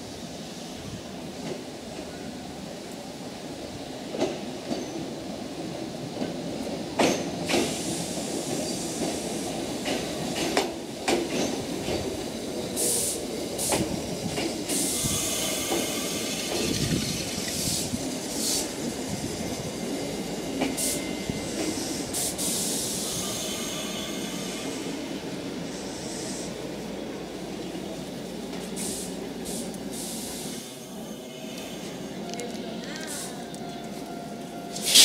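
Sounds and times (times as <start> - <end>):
train wheels clicking over rail joints: 6.2 - 18.7
air hissing: 28.7 - 30.6, 34.7 - 35.0.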